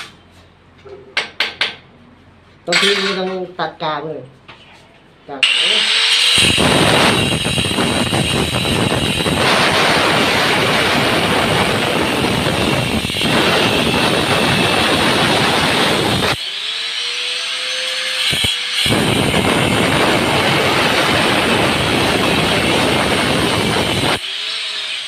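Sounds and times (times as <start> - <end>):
motor whine spinning free: 5.5 - 17.7, 18.4 - 25.0.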